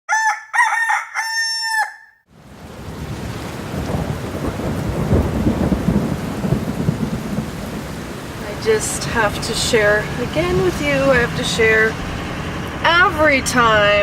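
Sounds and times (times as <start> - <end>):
rooster crowing: 0.1 - 2.2.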